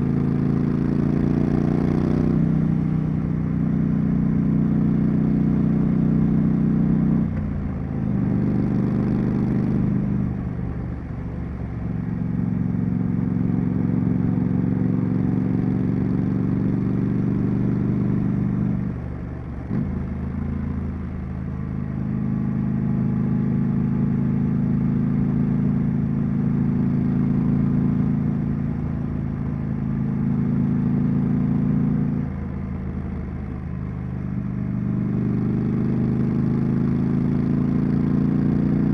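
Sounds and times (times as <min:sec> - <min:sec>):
motorcycle engine and exhaust: 0:00.0 - 0:38.9.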